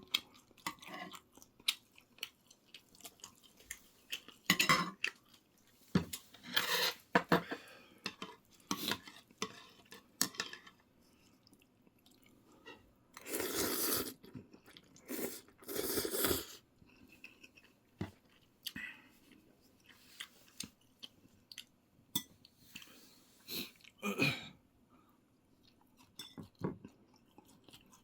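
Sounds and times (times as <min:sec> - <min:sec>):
person chewing: 0:00.0 - 0:06.3, 0:13.2 - 0:21.8, 0:25.6 - 0:28.0
cutlery clinking against dishes: 0:04.5 - 0:05.0.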